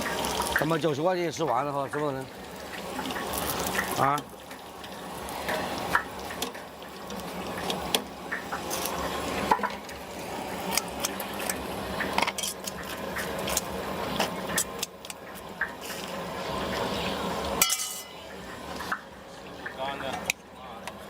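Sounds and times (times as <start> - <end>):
deep frying hiss: 0.0 - 21.0
metal utensils clinking and scraping: 12.2 - 14.8, 17.6 - 18.2.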